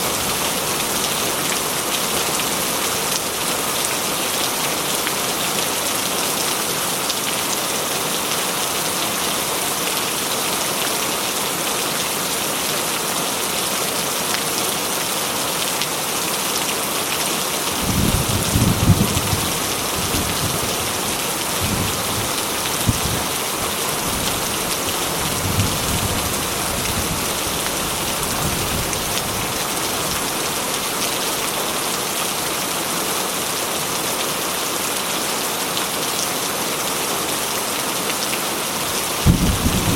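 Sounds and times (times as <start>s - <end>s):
heavy rain on a tin roof: 0.0s - 39.9s
thunder rumbling: 17.8s - 21.0s, 39.2s - 39.9s.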